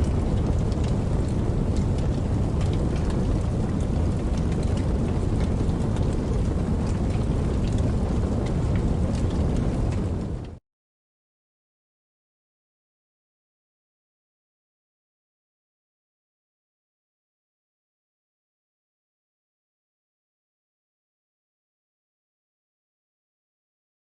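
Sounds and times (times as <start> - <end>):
steady rain: 0.0 - 10.6.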